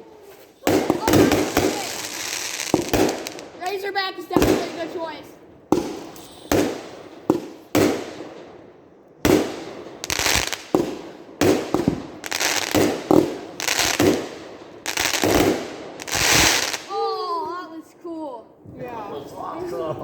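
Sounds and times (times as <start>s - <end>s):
firework crackling: 0.0s - 8.6s, 9.2s - 17.1s
firework bangs: 0.0s - 17.0s.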